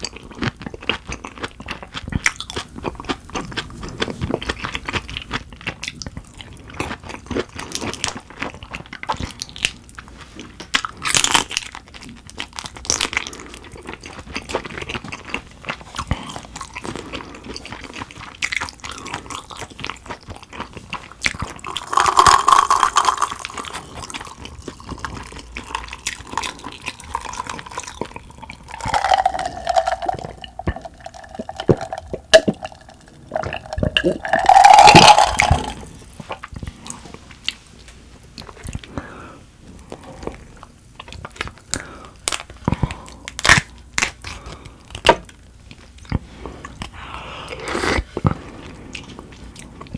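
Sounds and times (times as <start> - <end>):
swallowing and drinking: 21.6 - 36.4.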